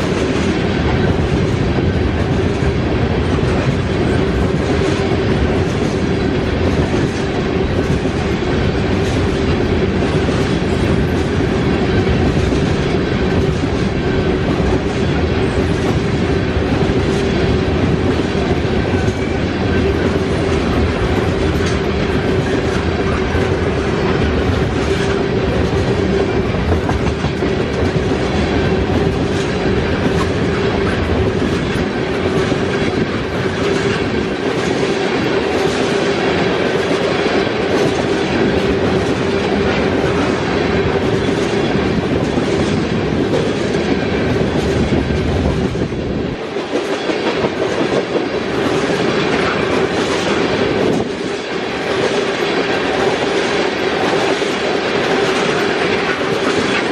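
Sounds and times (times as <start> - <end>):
train wheels clicking over rail joints: 0.0 - 56.9.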